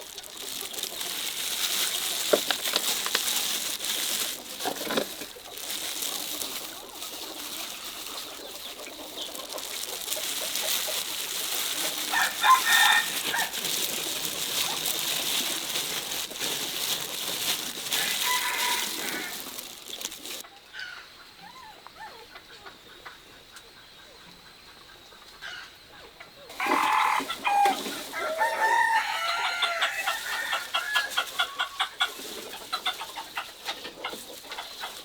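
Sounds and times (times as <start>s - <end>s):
rooster crowing: 12.1s - 13.6s, 17.9s - 19.5s, 26.5s - 31.3s
faint chicken clucking: 16.8s - 35.0s.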